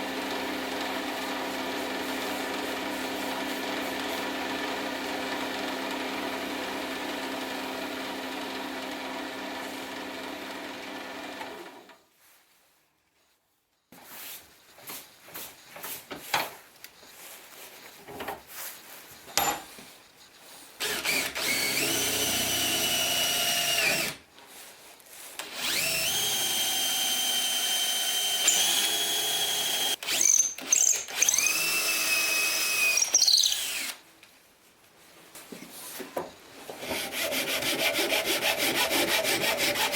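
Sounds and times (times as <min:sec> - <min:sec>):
power drill whining: 0:20.8 - 0:24.2, 0:25.4 - 0:34.0
electric motor humming: 0:25.6 - 0:30.2.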